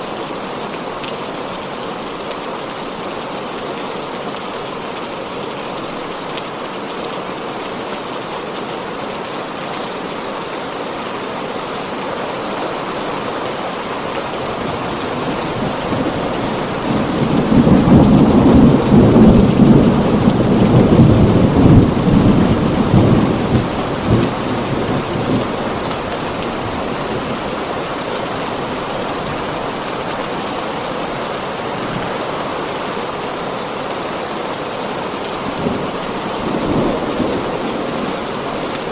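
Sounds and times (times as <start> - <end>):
heavy rain falling: 0.0 - 38.9
thunder rumbling: 12.5 - 27.8, 35.5 - 38.9.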